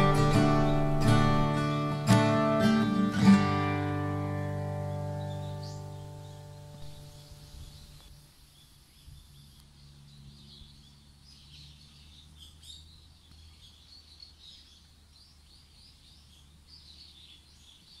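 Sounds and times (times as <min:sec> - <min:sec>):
low steady rumble: 0:00.0 - 0:02.1
small birds chirping: 0:00.0 - 0:18.0.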